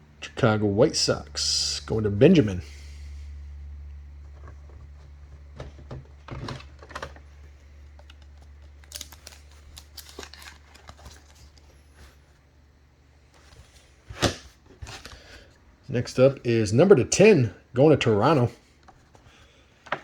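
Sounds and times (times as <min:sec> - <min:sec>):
low electrical hum: 0:00.0 - 0:20.0
cards clicking and rustling: 0:04.3 - 0:12.2.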